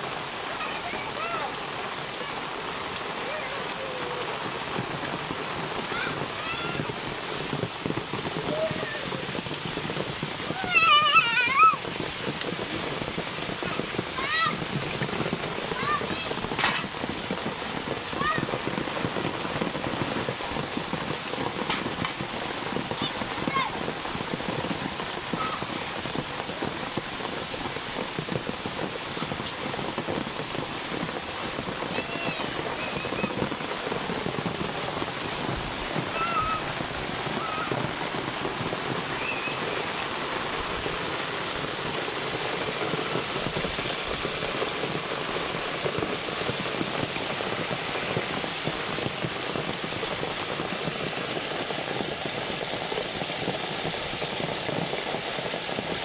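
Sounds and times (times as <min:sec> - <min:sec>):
heavy rain falling: 0:00.0 - 0:56.0
faint high-pitched calls: 0:10.6 - 0:11.8, 0:36.1 - 0:37.8, 0:39.1 - 0:39.9.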